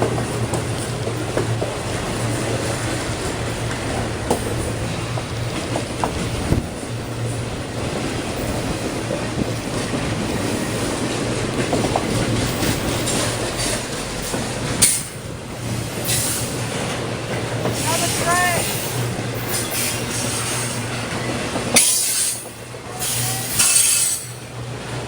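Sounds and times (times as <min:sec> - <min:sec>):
freight train rolling by: 0:00.0 - 0:25.0
wheels clacking over rail joints: 0:00.0 - 0:25.0
wheel squeals: 0:21.8 - 0:24.4.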